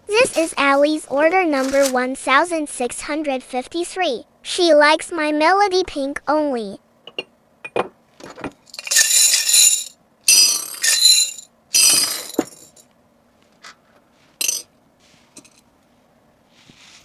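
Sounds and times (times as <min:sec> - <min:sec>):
clinking and jingling items: 0:08.6 - 0:12.8, 0:14.4 - 0:14.7.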